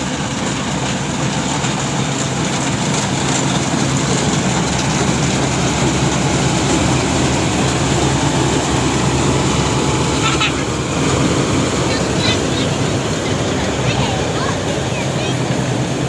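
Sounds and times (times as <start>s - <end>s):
harvesting machine engine running: 0.0s - 16.0s.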